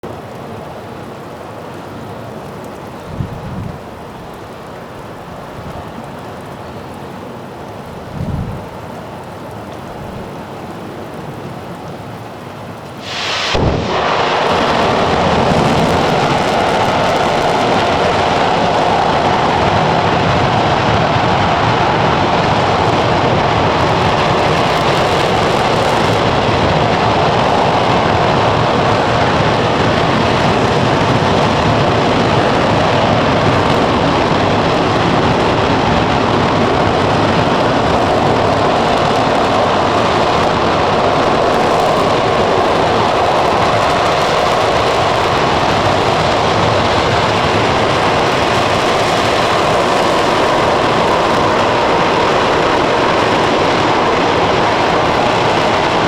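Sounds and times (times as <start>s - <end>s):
rocket engine firing: 13.0s - 56.0s.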